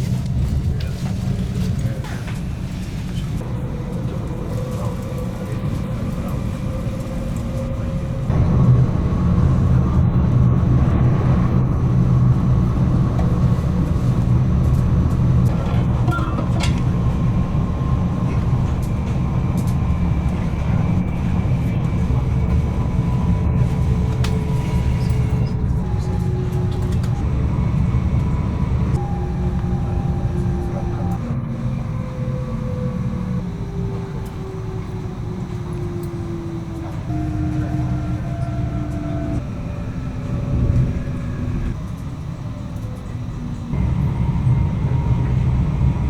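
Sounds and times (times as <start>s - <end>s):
electric train rumbling: 0.0s - 46.0s
faint whining tones: 3.2s - 46.0s.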